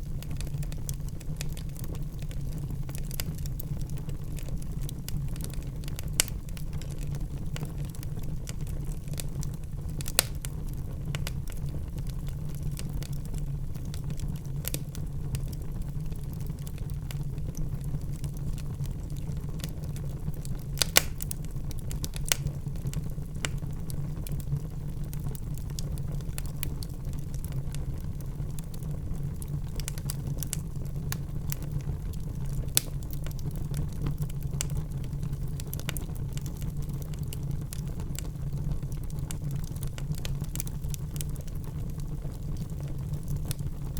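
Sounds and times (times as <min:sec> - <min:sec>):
wood fire crackling: 0:00.0 - 0:43.9
sharp fire pops: 0:05.9 - 0:06.9, 0:10.0 - 0:11.6, 0:20.5 - 0:23.8, 0:32.7 - 0:33.8.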